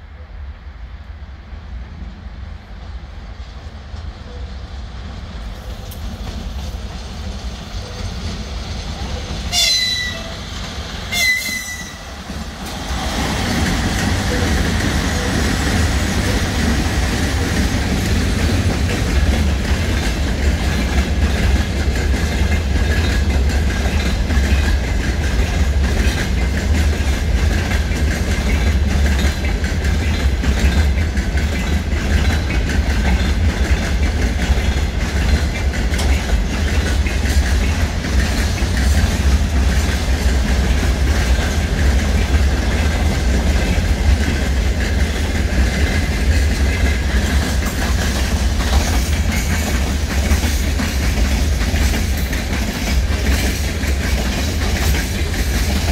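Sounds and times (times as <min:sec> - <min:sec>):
train wheels rumbling on rails: 0:00.0 - 0:55.9
wheels clattering over rail joints: 0:07.7 - 0:55.9
train horn blasts: 0:09.5 - 0:10.4, 0:11.1 - 0:12.2.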